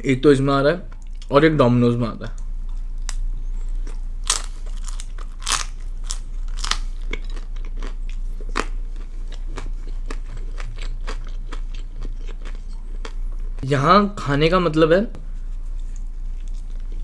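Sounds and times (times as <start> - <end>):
mouth chewing crunchy food: 2.6 - 13.6.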